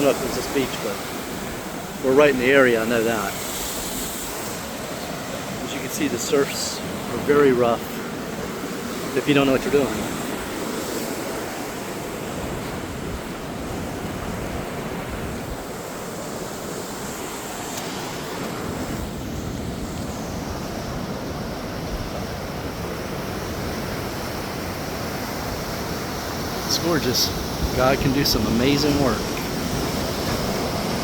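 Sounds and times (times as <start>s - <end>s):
ocean waves breaking on beach: 0.0s - 31.0s
wind on microphone: 17.9s - 31.0s.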